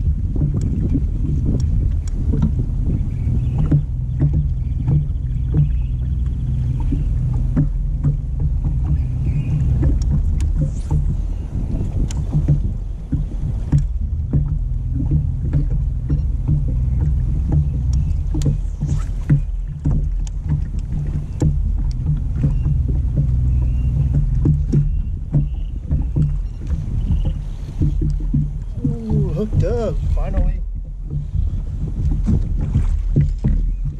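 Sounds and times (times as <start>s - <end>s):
boat motor low rumble: 0.0s - 33.9s
light taps: 11.8s - 23.4s.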